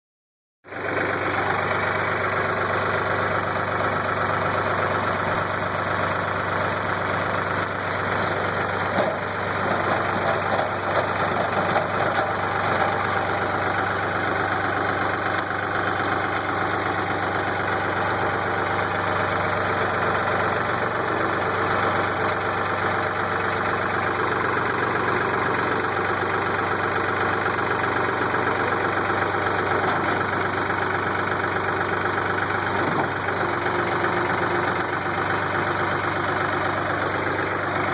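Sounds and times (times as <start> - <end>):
tractor engine running: 0.6 - 37.9.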